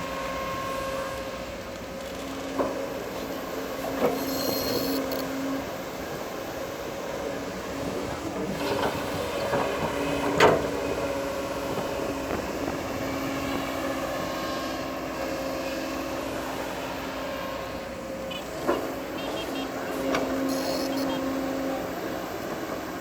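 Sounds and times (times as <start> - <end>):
bulldozer running: 0.0 - 23.0.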